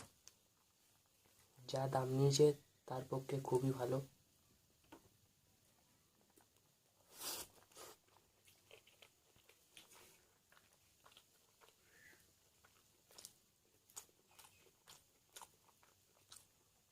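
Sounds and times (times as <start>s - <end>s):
person chewing food: 5.7s - 16.9s
food crunch: 6.1s - 16.9s.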